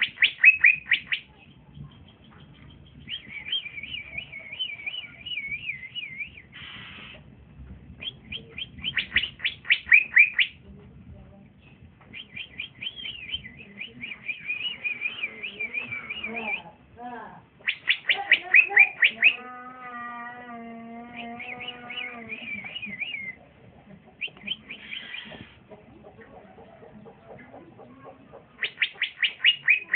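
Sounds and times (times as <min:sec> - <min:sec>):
bird chirping and trilling: 0:00.0 - 0:06.9, 0:08.0 - 0:10.6, 0:11.6 - 0:16.8, 0:17.6 - 0:20.0, 0:21.0 - 0:23.4, 0:24.2 - 0:25.5, 0:28.6 - 0:29.9
harsh bird rasp: 0:06.6 - 0:07.2, 0:24.7 - 0:25.6.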